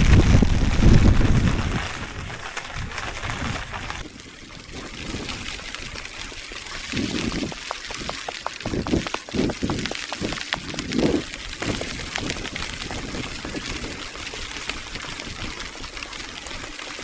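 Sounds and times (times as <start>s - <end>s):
rainwater trickling and pouring: 0.0s - 17.0s.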